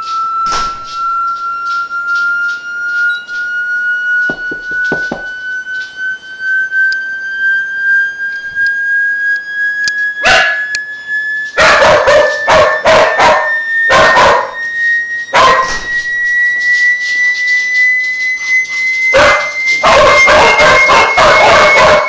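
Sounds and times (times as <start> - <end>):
rising hearing test tone: 0.0 - 22.0
dogs barking: 10.2 - 10.7, 11.6 - 14.6, 15.3 - 15.8, 19.1 - 22.0.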